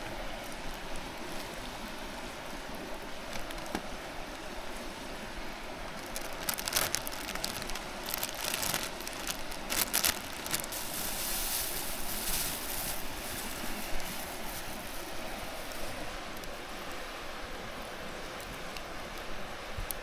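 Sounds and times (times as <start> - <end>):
mountain stream rushing: 0.0 - 20.0
sharp high clicks and rustles: 3.2 - 3.9, 6.0 - 16.6.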